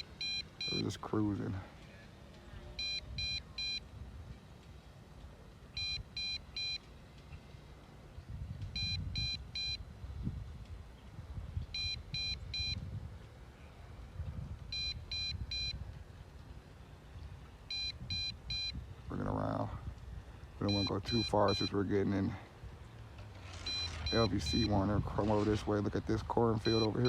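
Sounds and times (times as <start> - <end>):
short high beeps: 2.8 - 3.8, 5.8 - 6.8, 8.8 - 9.8, 11.8 - 12.8, 14.7 - 15.8, 17.7 - 18.8, 23.6 - 24.9, 26.6 - 27.0.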